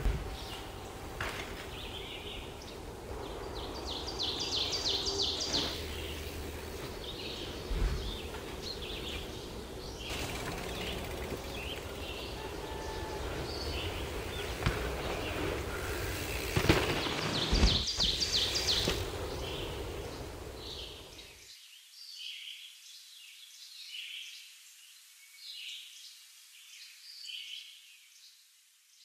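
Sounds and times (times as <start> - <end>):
outdoor rumble: 0.0 - 21.1
small birds chirping: 0.0 - 22.6.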